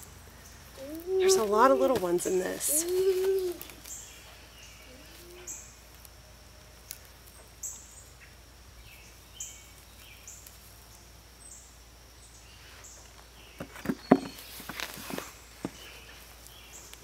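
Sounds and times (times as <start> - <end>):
hands moving potatoes through soil: 0.6 - 4.4, 12.6 - 17.0
bird chirping: 7.4 - 10.5.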